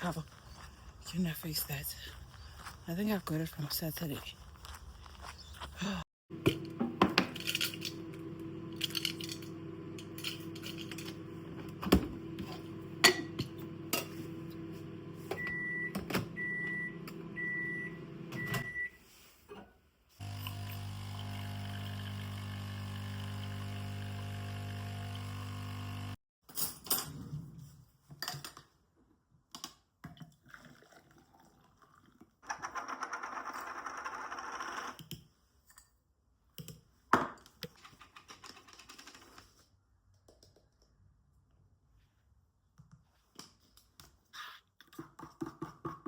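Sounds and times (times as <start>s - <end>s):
electric appliance humming: 6.3s - 15.3s, 16.2s - 18.4s, 20.2s - 26.2s.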